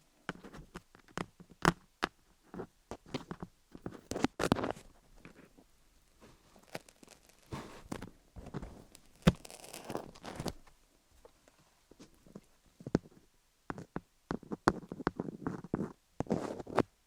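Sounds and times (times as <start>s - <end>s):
wooden picks scratching microphone: 6.2s - 10.7s, 13.7s - 16.9s.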